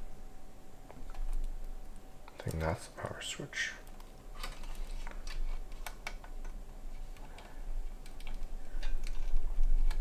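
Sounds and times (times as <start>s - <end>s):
low steady hum: 0.0s - 10.0s
small clicks and taps: 0.8s - 2.6s, 3.8s - 10.0s.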